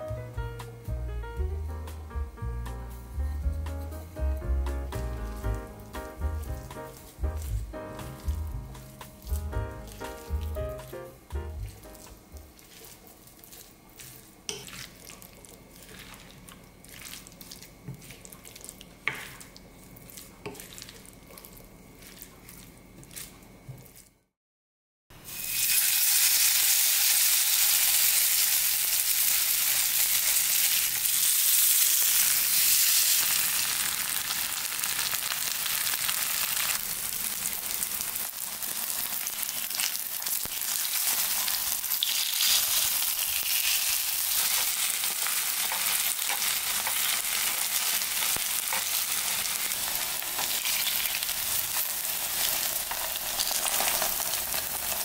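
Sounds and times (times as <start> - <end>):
pancakes sizzling in oil: 25.2 - 55.0.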